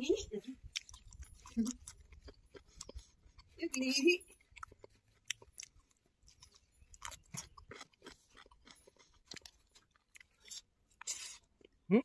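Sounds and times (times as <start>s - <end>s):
person chewing food: 0.6s - 11.9s.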